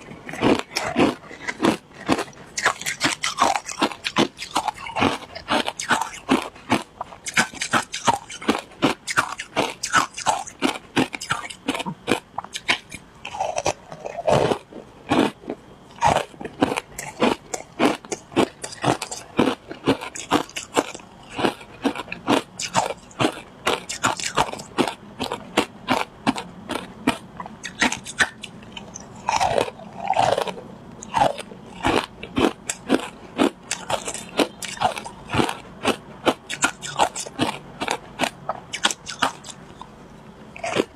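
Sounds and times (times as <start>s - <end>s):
person chewing crunchy ice: 0.0s - 40.9s.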